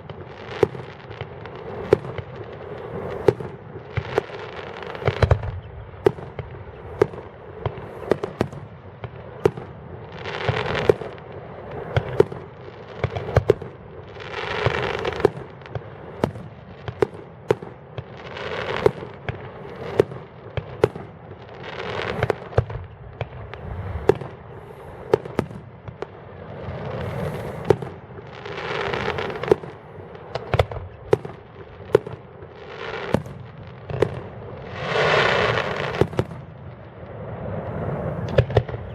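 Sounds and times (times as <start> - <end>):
fireworks bangs and pops: 0.0 - 38.9.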